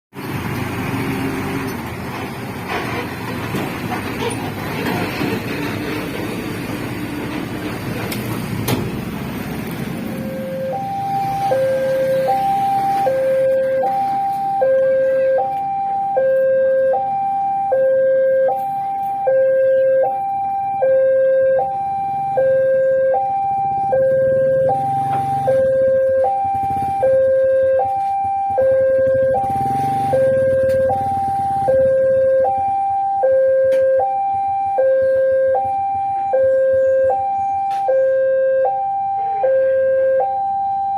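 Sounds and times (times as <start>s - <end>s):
level crossing two-tone alarm: 10.2s - 40.9s.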